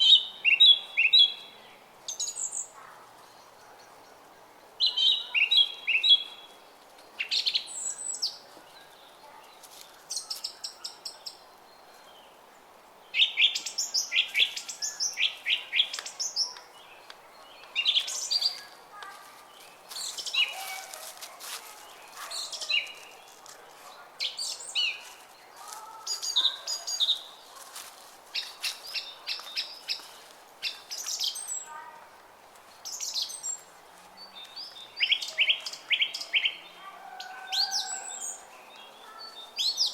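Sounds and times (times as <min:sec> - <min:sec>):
songbirds chirping and singing: 0:00.0 - 0:18.8, 0:19.4 - 0:31.9, 0:32.8 - 0:39.9.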